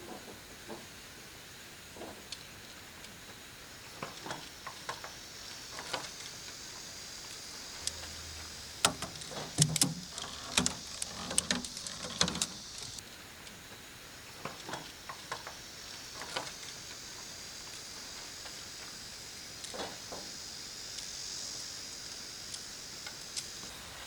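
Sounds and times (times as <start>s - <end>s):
high-pitched hiss: 0.0s - 24.0s
clicks and knocks of objects handled: 8.8s - 13.0s.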